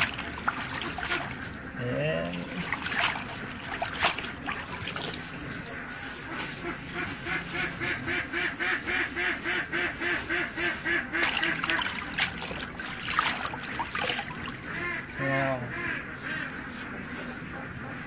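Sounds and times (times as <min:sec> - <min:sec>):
fowl nasal calls: 0:05.4 - 0:12.1, 0:14.6 - 0:18.0.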